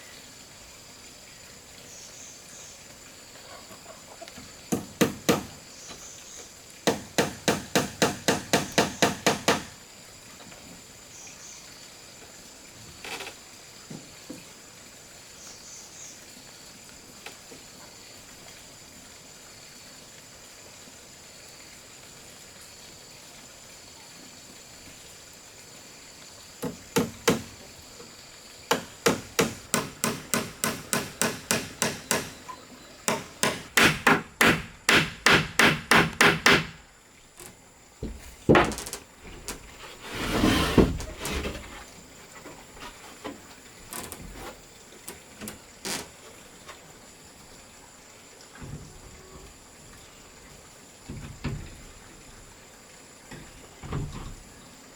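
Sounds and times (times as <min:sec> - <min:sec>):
faint background hiss: 0:00.0 - 0:54.9
hammer striking wood: 0:04.7 - 0:05.6, 0:06.8 - 0:09.8, 0:26.6 - 0:27.5, 0:28.7 - 0:32.4, 0:33.1 - 0:36.8
scraping rustle: 0:37.4 - 0:46.9.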